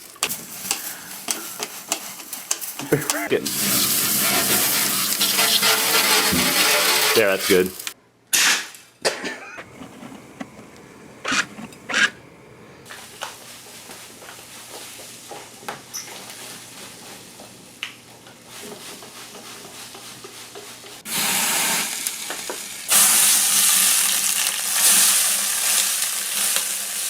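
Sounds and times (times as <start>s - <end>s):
loud sizzling hiss: 0.0s - 8.0s, 21.0s - 27.0s.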